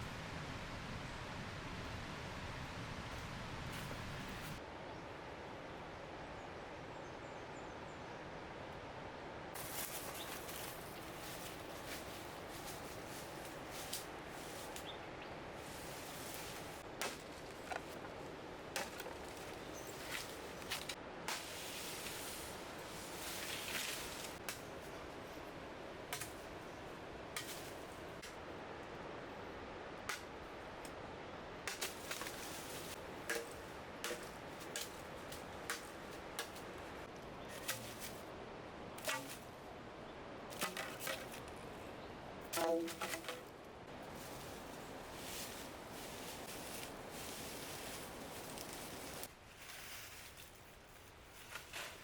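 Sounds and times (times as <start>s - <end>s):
soft rustle: 9.6s - 25.6s, 31.8s - 38.4s, 42.5s - 52.0s.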